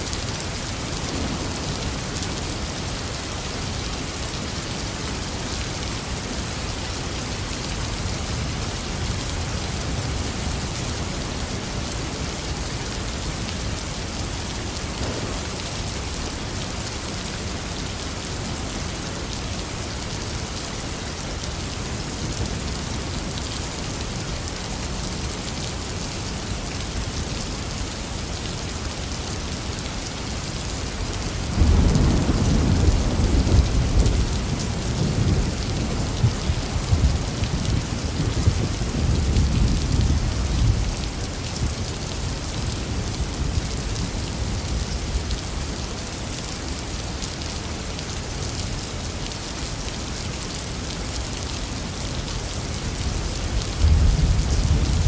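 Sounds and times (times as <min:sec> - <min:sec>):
heavy rain falling: 0:00.0 - 0:55.0
rumble of thunder: 0:14.9 - 0:16.2, 0:31.5 - 0:40.9, 0:53.6 - 0:55.0.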